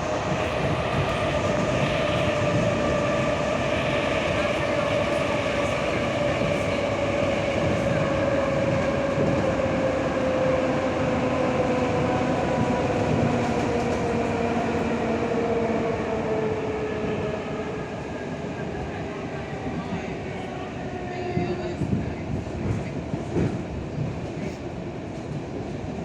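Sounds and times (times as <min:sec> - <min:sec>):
train wheels rumbling: 0:00.0 - 0:17.8
electric train whine: 0:00.0 - 0:19.8.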